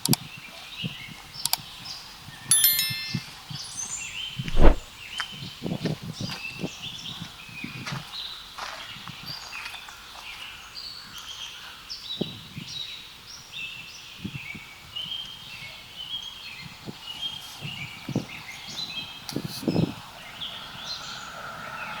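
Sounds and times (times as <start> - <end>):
soft footsteps: 4.5 - 4.9.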